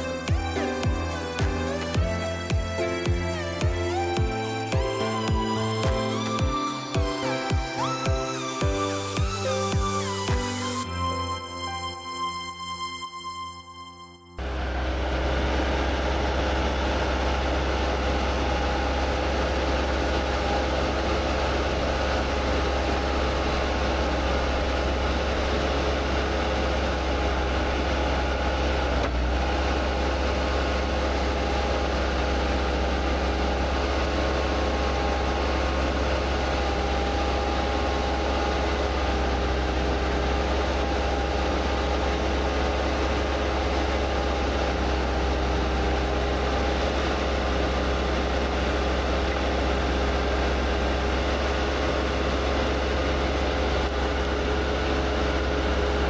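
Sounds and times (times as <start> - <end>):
engine running steadily: 14.4 - 56.0.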